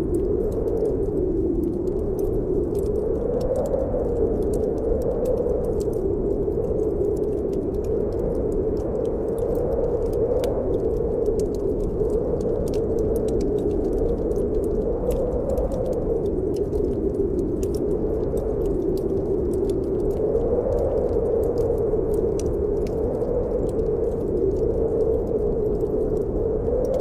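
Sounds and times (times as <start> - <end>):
howling wind: 0.0 - 27.0
wood fire crackling: 0.0 - 27.0.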